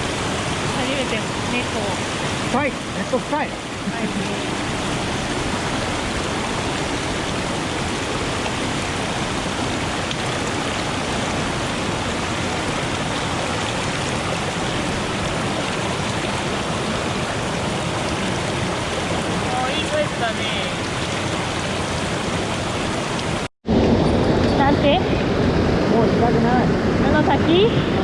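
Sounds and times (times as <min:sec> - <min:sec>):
stream water rushing over rocks: 0:00.0 - 0:28.0.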